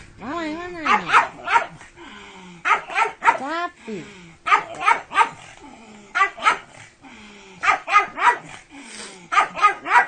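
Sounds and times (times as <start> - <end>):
dog barking: 0.8 - 1.8, 2.6 - 3.5, 4.5 - 5.5, 6.2 - 6.8, 7.6 - 8.6, 9.3 - 10.0.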